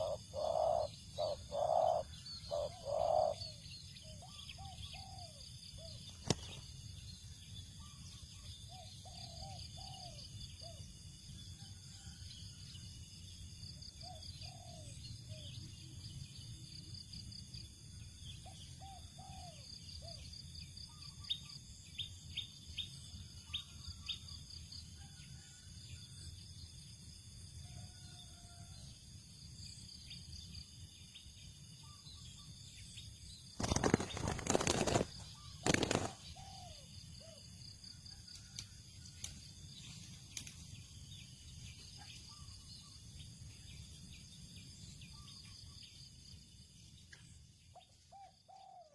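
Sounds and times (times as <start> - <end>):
dove cooing: 0.0 - 3.6, 48.2 - 48.9.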